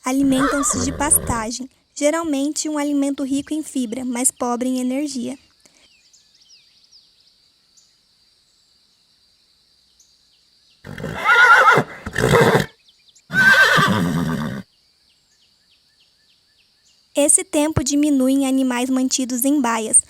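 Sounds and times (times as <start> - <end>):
horse whinnying: 0.0 - 1.5, 10.9 - 12.7, 13.3 - 14.7.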